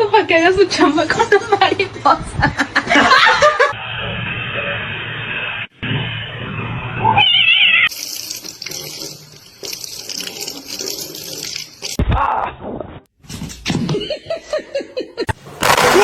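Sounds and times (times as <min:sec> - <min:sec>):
tap water running: 0:07.9 - 0:12.0.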